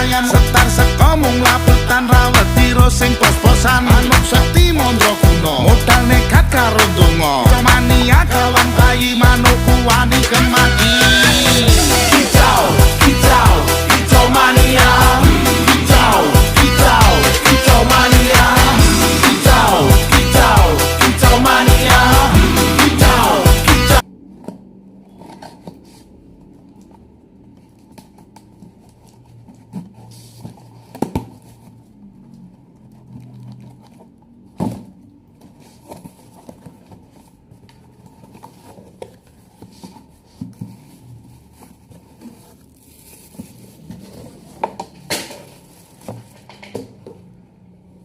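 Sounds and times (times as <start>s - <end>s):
music: 0.0s - 24.0s
packaging rustling and tearing: 35.4s - 44.6s.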